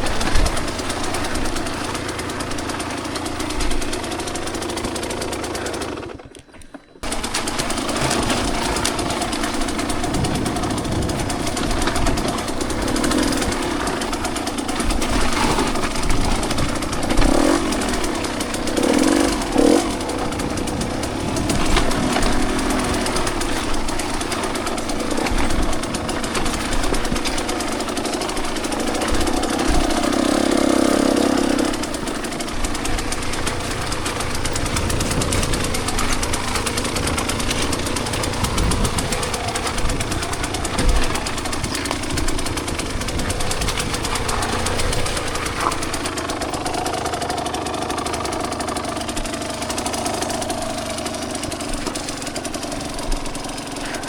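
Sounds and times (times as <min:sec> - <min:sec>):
two-stroke dirt bike engine revving: 0:00.0 - 0:54.0.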